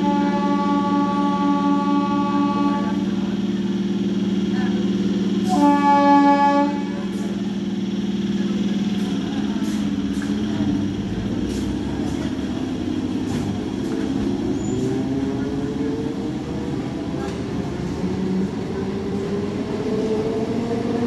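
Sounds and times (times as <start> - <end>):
train horn: 0.0 - 3.2, 5.4 - 7.2
electric train hum: 0.0 - 21.0.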